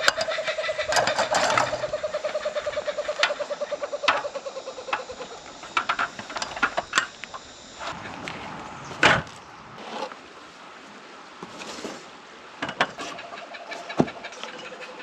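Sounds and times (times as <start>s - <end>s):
animal rapid pulsing call: 0.0s - 9.9s.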